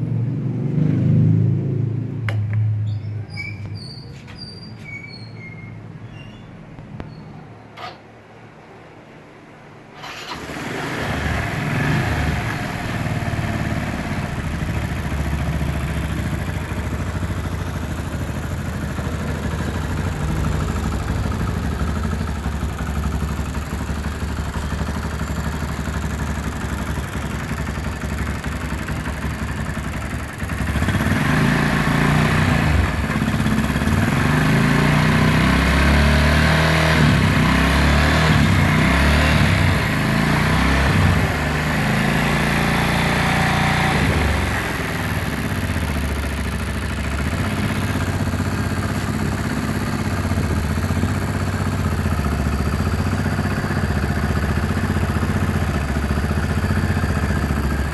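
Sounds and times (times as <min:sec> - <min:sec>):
motorcycle engine running: 0:10.0 - 0:57.9.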